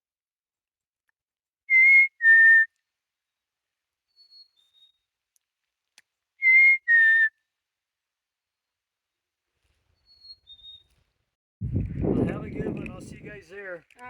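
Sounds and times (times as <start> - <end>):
bird whistling: 1.7 - 2.7, 6.4 - 7.3
person whistling two notes: 1.7 - 2.8, 6.4 - 7.4.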